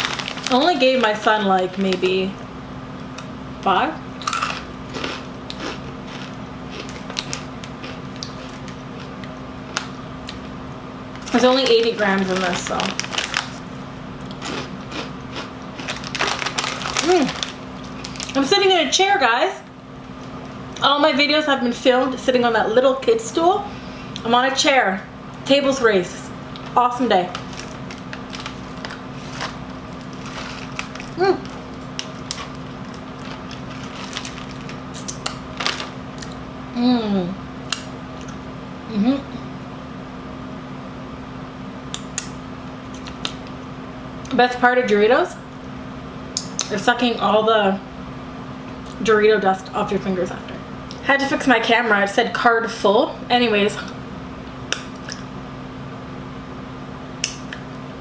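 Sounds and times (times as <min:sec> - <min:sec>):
chewing chips: 0:00.0 - 0:01.3, 0:04.2 - 0:10.5, 0:11.2 - 0:18.4, 0:26.5 - 0:36.4, 0:42.9 - 0:43.5.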